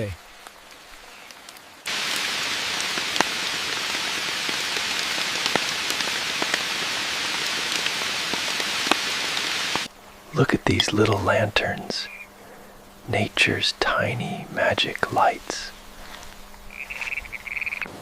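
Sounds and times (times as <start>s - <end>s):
heavy rain: 0.0s - 12.1s
close raindrop hits: 0.3s - 9.9s.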